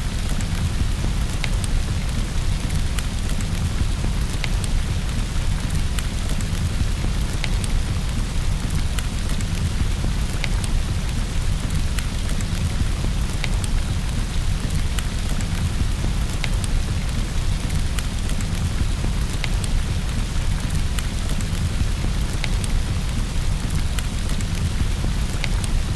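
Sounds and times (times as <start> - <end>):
steady rain: 0.0 - 25.9
wood fire crackling: 0.2 - 25.9.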